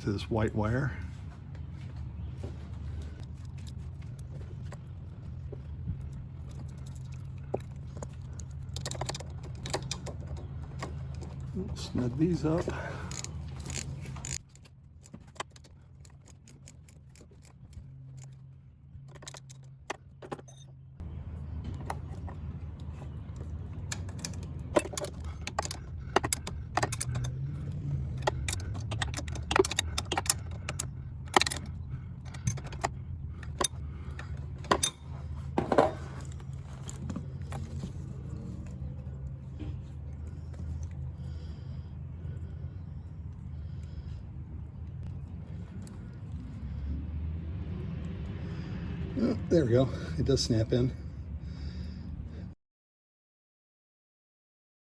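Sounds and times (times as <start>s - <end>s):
steady low hum: 0.0s - 52.6s
socket wrench clicking: 13.0s - 18.4s, 23.8s - 35.1s.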